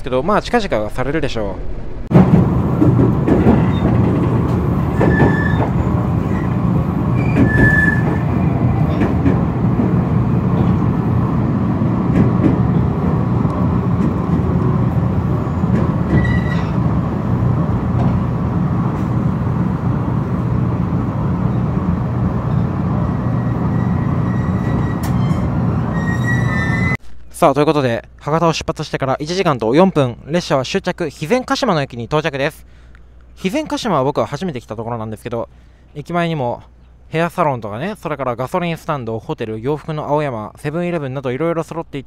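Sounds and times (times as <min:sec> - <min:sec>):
electric train rumbling: 0:00.0 - 0:27.0
short high squeals: 0:05.0 - 0:06.6, 0:07.2 - 0:08.3, 0:16.1 - 0:16.8, 0:23.3 - 0:27.0.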